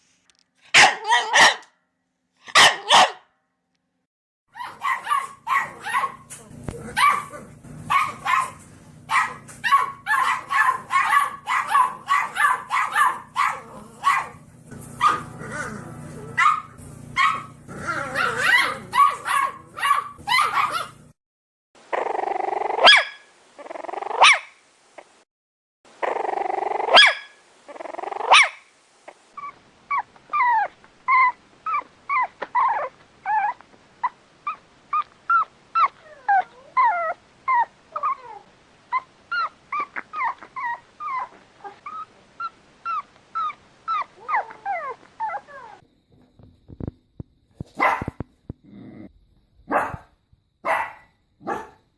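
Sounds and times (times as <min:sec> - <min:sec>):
dogs barking: 0:00.7 - 0:01.7, 0:02.5 - 0:03.3, 0:04.6 - 0:21.1, 0:22.8 - 0:23.2, 0:24.2 - 0:24.5, 0:26.9 - 0:27.4, 0:28.3 - 0:28.6, 0:47.7 - 0:48.2, 0:49.7 - 0:51.8
dog yipping: 0:00.8 - 0:01.7, 0:02.5 - 0:03.3, 0:04.5 - 0:14.4, 0:15.0 - 0:21.0, 0:22.8 - 0:23.3, 0:24.1 - 0:24.6, 0:26.8 - 0:28.6, 0:29.4 - 0:45.8, 0:47.8 - 0:48.2, 0:49.7 - 0:50.0, 0:50.7 - 0:51.8
low steady hum: 0:04.8 - 0:21.1.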